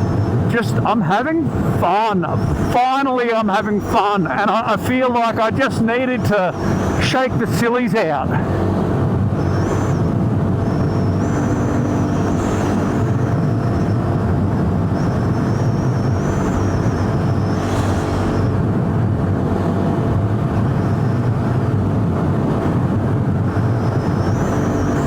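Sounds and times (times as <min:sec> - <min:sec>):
motorcycle engine cruising: 0:00.0 - 0:00.8, 0:06.1 - 0:07.4, 0:08.2 - 0:25.0
wind noise on microphone: 0:00.0 - 0:25.0.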